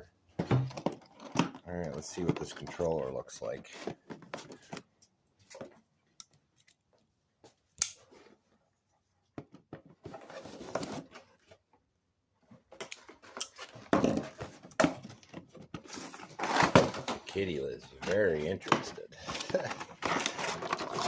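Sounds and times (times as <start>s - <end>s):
plastic packaging crinkling: 19.2s - 21.0s.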